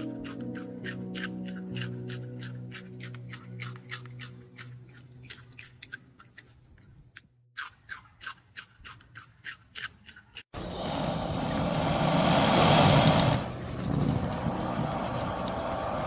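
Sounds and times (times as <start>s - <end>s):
animal chewing with crunching clicks: 0.0s - 10.5s.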